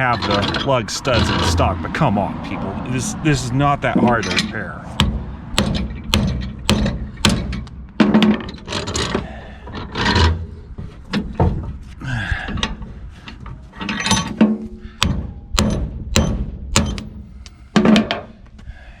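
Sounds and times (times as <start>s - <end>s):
metal parts scraping and clinking: 0.0s - 1.7s, 4.0s - 4.7s, 5.8s - 11.3s, 13.2s - 14.6s
hammer striking steel: 4.0s - 8.3s, 15.0s - 17.2s.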